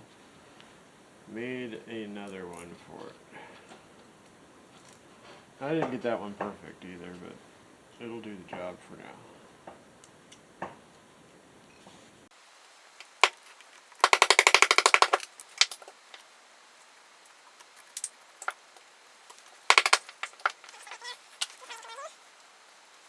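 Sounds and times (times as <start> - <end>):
run of even clicks: 13.0 - 16.3, 17.6 - 21.9.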